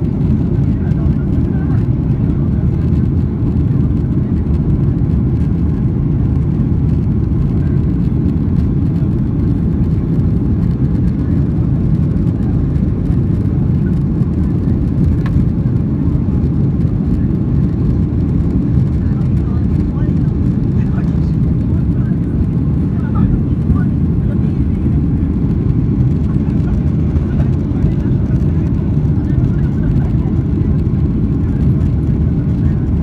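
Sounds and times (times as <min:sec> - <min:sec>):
jet airliner cabin rumble: 0:00.0 - 0:33.0.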